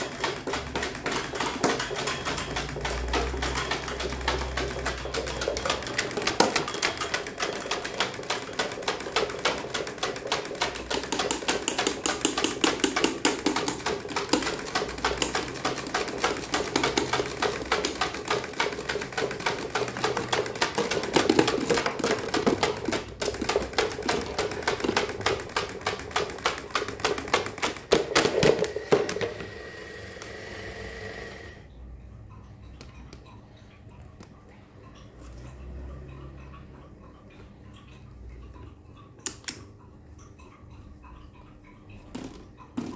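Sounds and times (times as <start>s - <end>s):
fan whirring: 0.0s - 31.8s
electric fan clattering: 0.0s - 42.9s.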